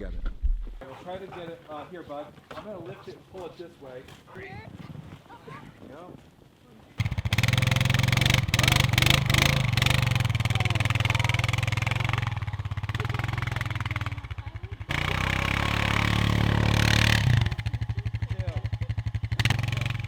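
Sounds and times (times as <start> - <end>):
vehicle engine pulsing: 7.0 - 20.0.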